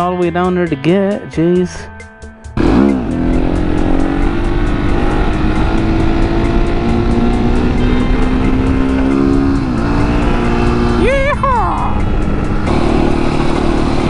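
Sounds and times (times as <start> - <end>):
motorcycle engine revving: 2.5 - 14.0
wind rush on microphone: 3.7 - 14.0.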